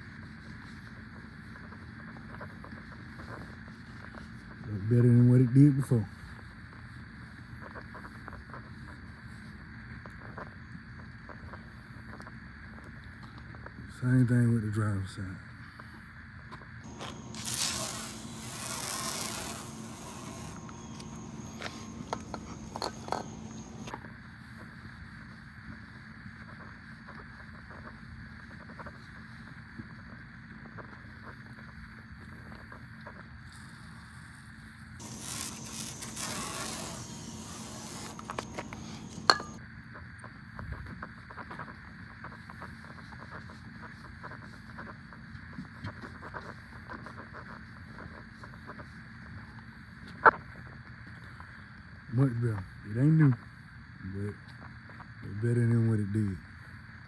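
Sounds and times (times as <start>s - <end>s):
aerosol can spraying: 16.9s - 23.9s, 35.0s - 39.6s
scraping on plastic lens: 16.9s - 24.0s, 35.0s - 39.6s.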